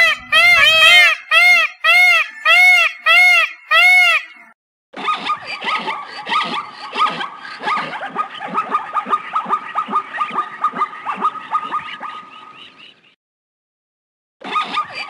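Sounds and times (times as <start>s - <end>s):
short falling animal calls: 0.0s - 4.4s.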